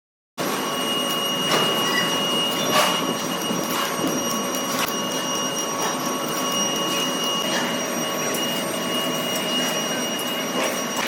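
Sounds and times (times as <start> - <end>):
high machine whine: 0.4 - 11.0
workshop machinery running: 0.4 - 11.0
sharp metallic knocks: 2.6 - 8.4.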